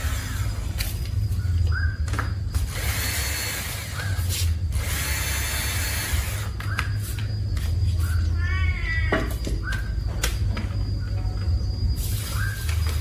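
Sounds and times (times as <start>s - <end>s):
steady low hum: 0.0s - 13.0s
small electric motor whirring: 2.6s - 6.6s.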